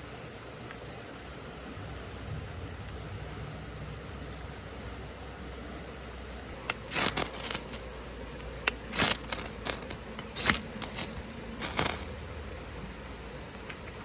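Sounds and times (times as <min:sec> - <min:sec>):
light metallic clinking: 0:06.6 - 0:12.4.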